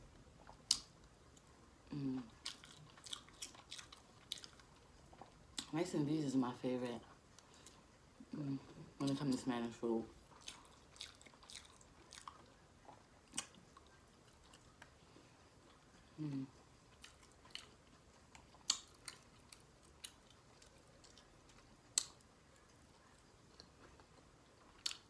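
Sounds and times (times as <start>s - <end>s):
person chewing food: 0.0s - 5.8s, 7.0s - 25.0s
wet mouth clicks and smacks: 0.5s - 0.9s
closed-mouth hum: 14.7s - 17.0s.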